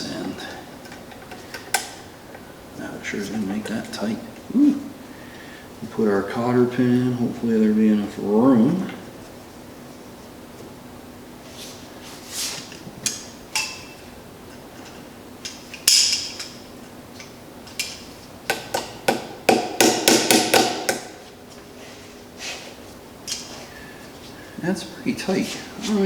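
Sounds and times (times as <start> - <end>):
hand tools tapping metal: 17.2 - 21.1.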